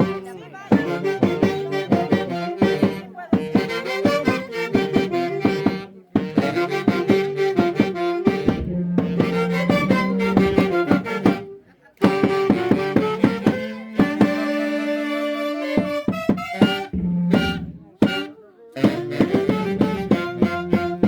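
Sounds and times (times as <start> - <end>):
instrumental dance music: 8.3 - 13.0.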